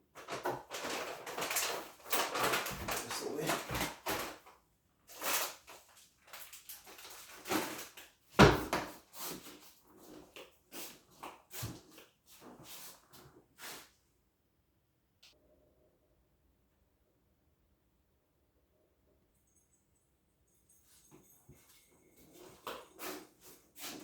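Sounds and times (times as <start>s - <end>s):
kitchen knocks and bumps: 8.4s - 9.0s.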